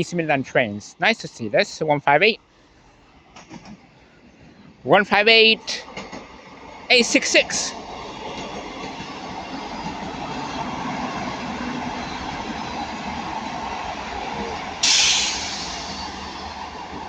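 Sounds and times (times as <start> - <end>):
diesel train running past: 5.6 - 17.0
sudden loud hiss: 14.8 - 16.4.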